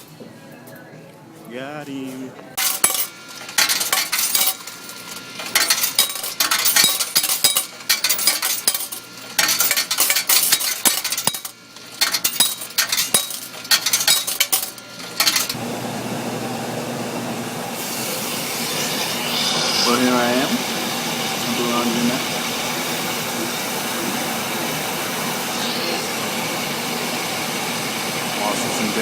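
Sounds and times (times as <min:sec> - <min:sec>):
clinking and clattering: 0:02.6 - 0:15.6
steady hum: 0:18.0 - 0:29.0.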